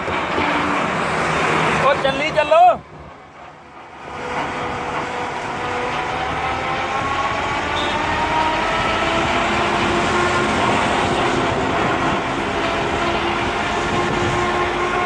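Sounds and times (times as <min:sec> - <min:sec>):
combine harvester machinery rumble: 0:00.0 - 0:15.0
machinery whine rising in pitch: 0:04.6 - 0:15.0.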